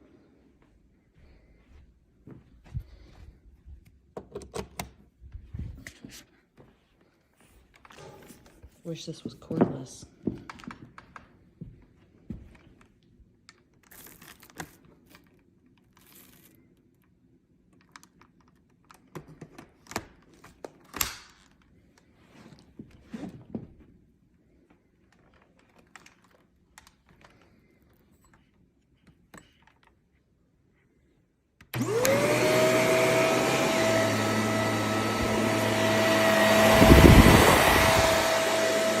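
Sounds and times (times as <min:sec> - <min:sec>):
vacuum cleaner handling clicks: 0:31.6 - 0:39.0.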